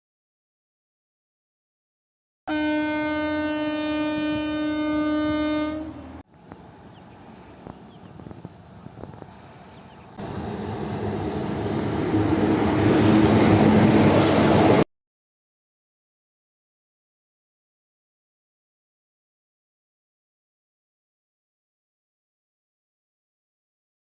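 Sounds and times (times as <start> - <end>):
train horn blast: 2.5 - 6.2
train rumbling past: 2.5 - 14.9.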